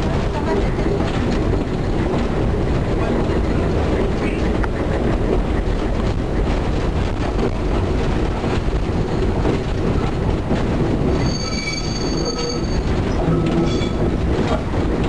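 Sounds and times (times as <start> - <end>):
rail bus engine and wheels rumbling: 0.0 - 15.0
rail clicks: 0.0 - 15.0.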